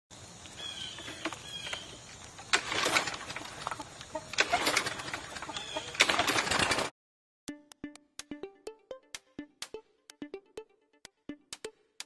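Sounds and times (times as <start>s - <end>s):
birds chirping: 0.4s - 2.6s, 3.2s - 6.6s.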